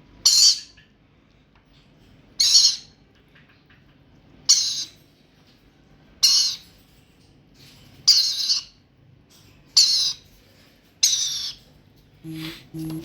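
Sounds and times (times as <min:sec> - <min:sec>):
parrot chick harsh calls: 0:00.2 - 0:00.7, 0:02.4 - 0:02.9, 0:04.5 - 0:05.0, 0:06.2 - 0:06.6, 0:08.1 - 0:08.8, 0:09.8 - 0:10.2, 0:11.0 - 0:11.6.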